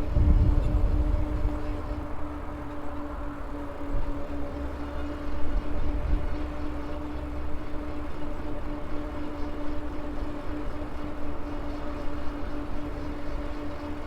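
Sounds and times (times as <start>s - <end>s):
rolling noise: 0.0s - 3.0s
wind rumble on microphone: 0.0s - 6.9s.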